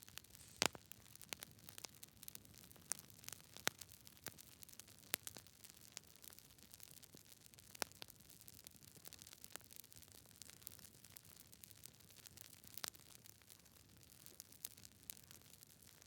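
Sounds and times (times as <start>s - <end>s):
burning wood crackling and popping: 0.0s - 16.0s
flame hissing: 0.2s - 0.9s.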